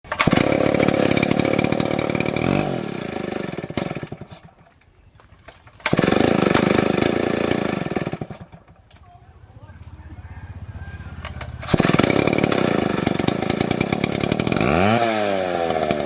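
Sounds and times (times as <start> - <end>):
chainsaw revving and idling: 0.1 - 4.6, 5.8 - 8.6, 11.4 - 16.0.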